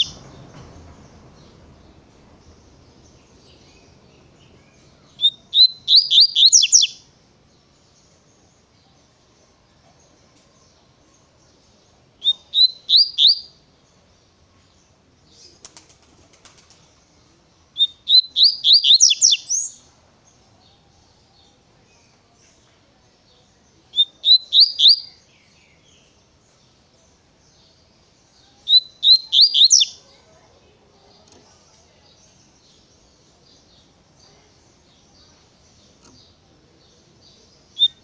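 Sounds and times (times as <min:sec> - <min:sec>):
bird singing rising notes: 0:00.0 - 0:07.1, 0:12.2 - 0:13.6, 0:17.8 - 0:19.9, 0:24.0 - 0:25.6, 0:28.6 - 0:30.0.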